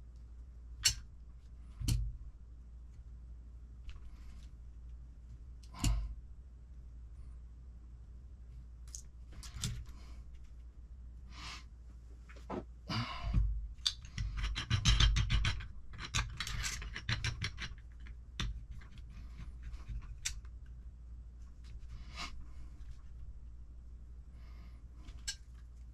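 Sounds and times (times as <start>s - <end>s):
tools clicking and tapping: 0.8s - 1.1s, 13.8s - 20.4s, 25.1s - 25.6s.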